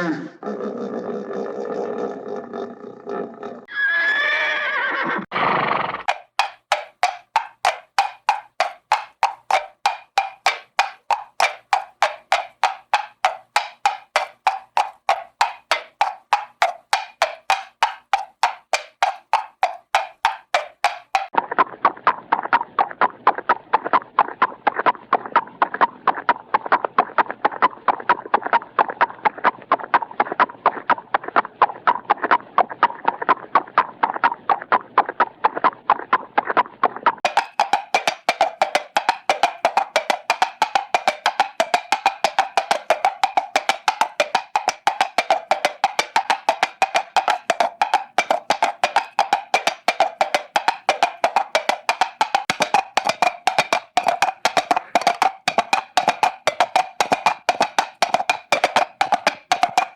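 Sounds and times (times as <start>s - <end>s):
high-pitched woodblock knocking: 6.0s - 21.4s, 37.2s - 59.9s
wooden clip-clop knocks: 6.0s - 59.9s.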